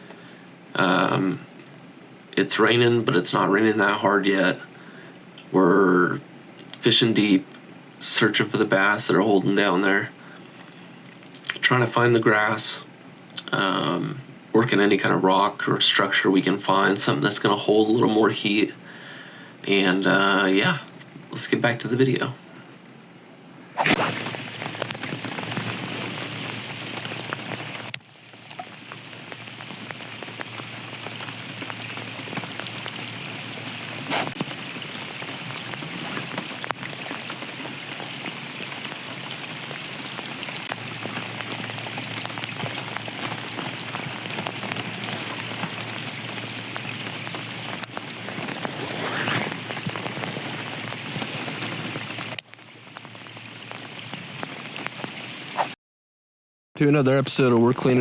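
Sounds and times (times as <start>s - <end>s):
rain falling: 0.0s - 4.6s, 23.8s - 55.6s.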